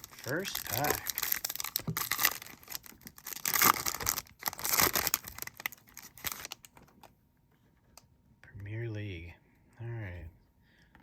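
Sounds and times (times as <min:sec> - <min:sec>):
wrapper tearing and crinkling: 0:00.0 - 0:07.0.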